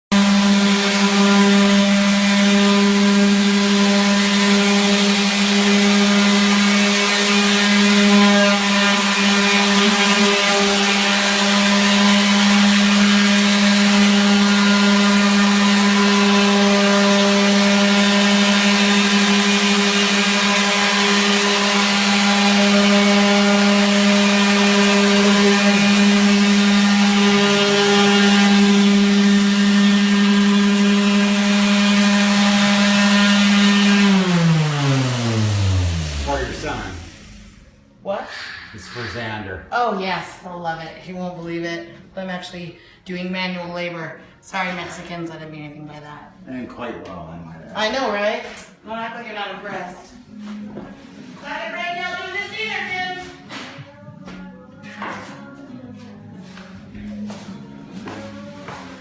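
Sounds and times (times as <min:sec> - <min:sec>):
power sander motor hum: 0:00.2 - 0:37.7.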